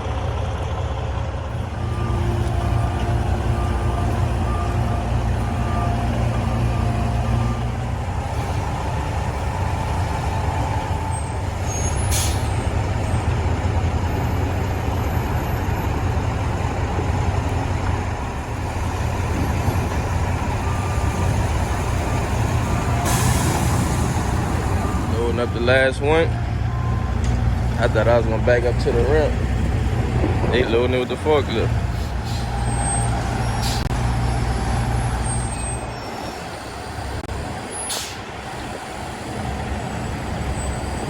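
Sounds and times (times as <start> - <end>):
heavy vehicle engine idling: 0.0 - 41.0
reversing alarm beeping: 1.6 - 13.3, 19.4 - 29.4.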